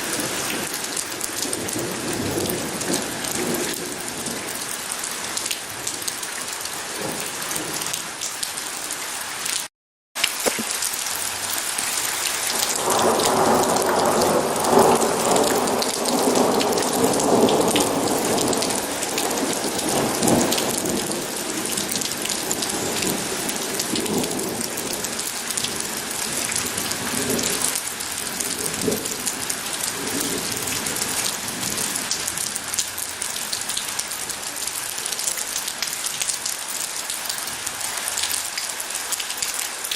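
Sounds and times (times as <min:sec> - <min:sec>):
heavy rain hissing: 0:10.3 - 0:39.8
thunder rolling: 0:12.6 - 0:25.1.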